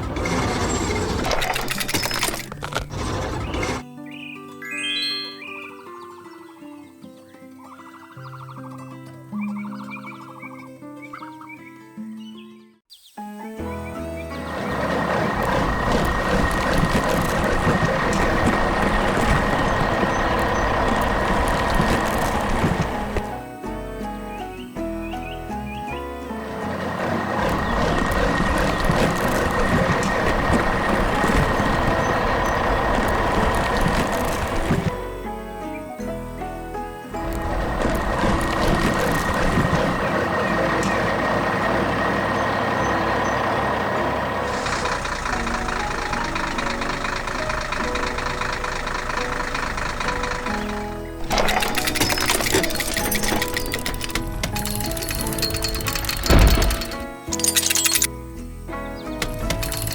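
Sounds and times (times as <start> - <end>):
heavy truck engine rumbling: 0.0 - 3.8, 13.7 - 59.9
thin high tone: 4.6 - 6.2
clicks: 50.7 - 58.1.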